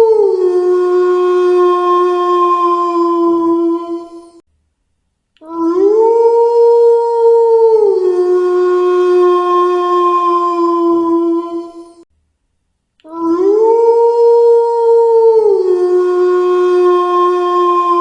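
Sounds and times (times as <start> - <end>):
wolf howling: 0.0 - 4.4, 5.4 - 12.0, 13.1 - 18.0.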